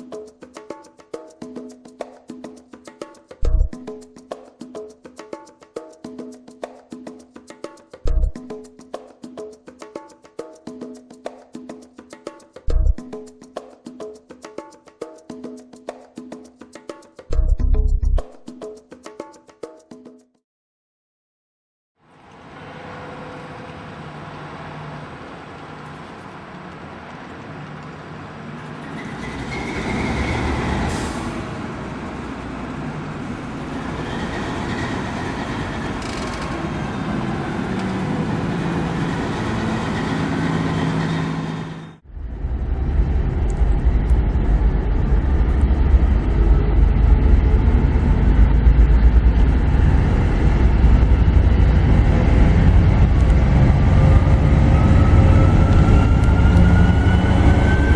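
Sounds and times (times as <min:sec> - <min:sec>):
diesel locomotive engine rumble: 0:28.8 - 0:57.9.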